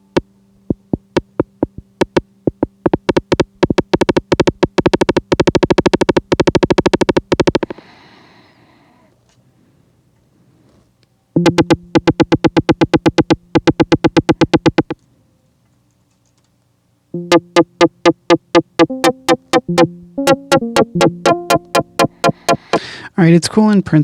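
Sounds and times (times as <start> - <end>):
stuttering synth pulses: 0.7 - 7.7, 11.4 - 15.0, 17.2 - 22.8.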